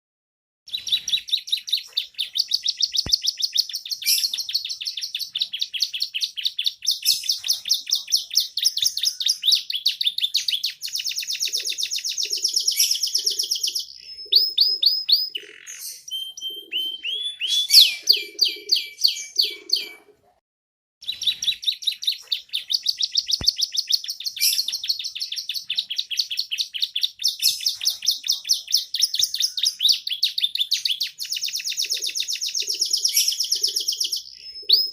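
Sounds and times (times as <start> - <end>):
canary singing in trills: 0.7 - 20.2, 21.0 - 34.9.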